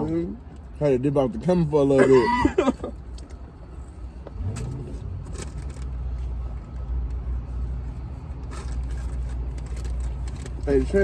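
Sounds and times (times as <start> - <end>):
faint rustles and clicks: 2.7 - 11.0.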